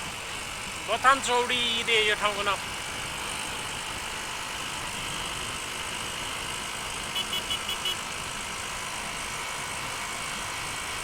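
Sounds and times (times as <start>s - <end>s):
motorcycle riding at speed: 0.0s - 11.0s.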